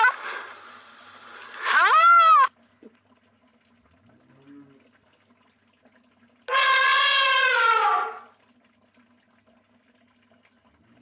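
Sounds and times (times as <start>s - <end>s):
rhinoceros call: 6.5s - 8.3s.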